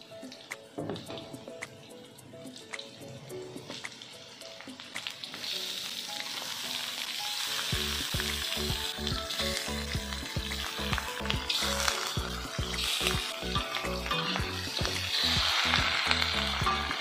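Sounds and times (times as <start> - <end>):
fish sizzling in hot oil: 0.0 - 17.0
music with pulsing bass beat: 7.7 - 17.0.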